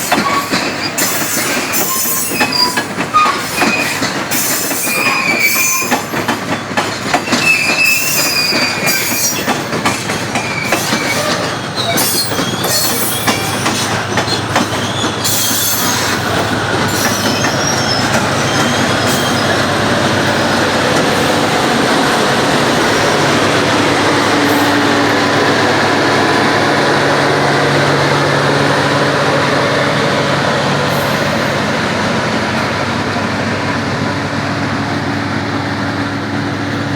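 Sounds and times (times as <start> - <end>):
train wheels squealing: 0.0 - 19.7, 30.8 - 31.7
freight train wagons rolling: 0.0 - 28.2.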